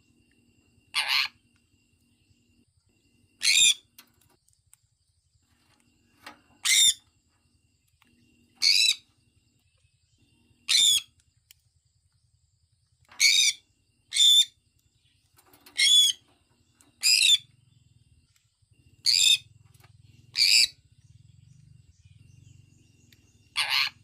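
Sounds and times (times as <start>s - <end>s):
parrot calling: 0.9s - 1.4s, 3.4s - 3.8s, 6.6s - 7.0s, 8.6s - 9.0s, 10.7s - 11.1s, 13.2s - 14.5s, 15.8s - 16.2s, 19.0s - 19.5s, 20.3s - 20.8s, 23.5s - 24.0s.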